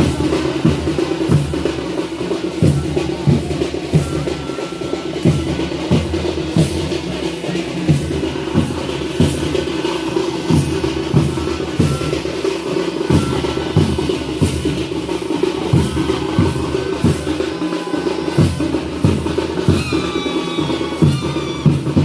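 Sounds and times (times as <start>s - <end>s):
heavy dhol beats: 0.0s - 22.0s
tasha drums rattling: 0.0s - 22.0s
wavering high melodic tone: 2.9s - 6.4s, 10.9s - 21.7s.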